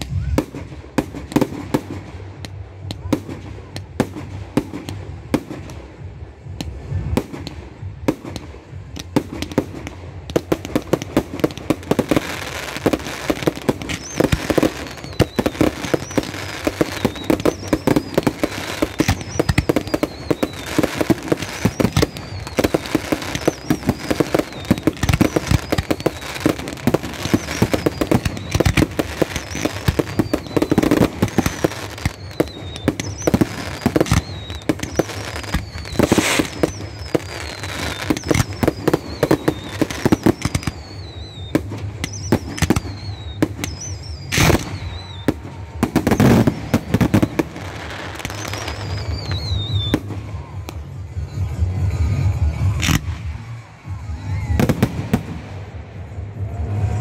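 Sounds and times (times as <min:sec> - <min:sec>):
fireworks bangs: 0:00.0 - 0:57.0
falling firework whistles: 0:12.0 - 0:50.8.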